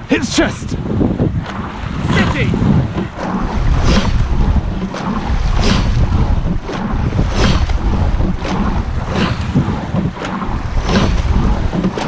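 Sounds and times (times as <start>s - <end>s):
oars driving through water: 0.0s - 12.0s
wind buffeting microphone: 0.0s - 12.0s.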